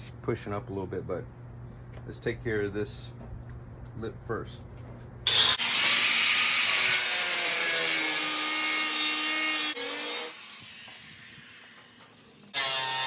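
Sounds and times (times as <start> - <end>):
cut-off wheel cutting sheet metal: 5.3 - 13.0.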